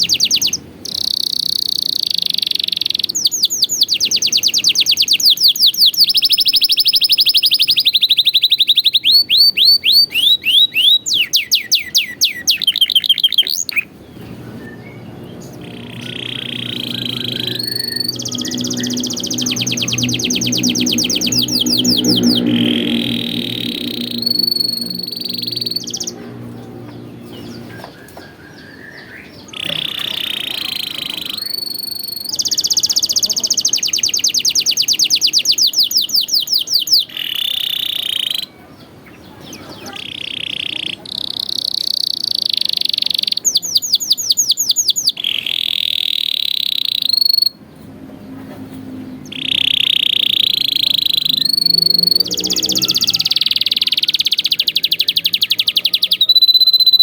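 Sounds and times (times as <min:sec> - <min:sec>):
canary singing trills: 0:00.0 - 0:57.0
low pitched sound: 0:14.5 - 0:27.9.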